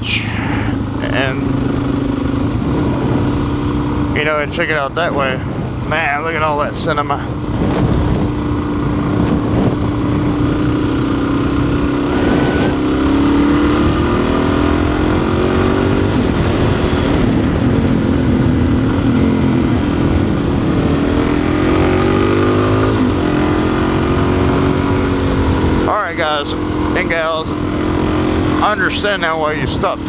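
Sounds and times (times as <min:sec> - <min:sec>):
motorcycle engine revving: 0:00.0 - 0:30.0
wind noise on microphone: 0:05.0 - 0:25.9.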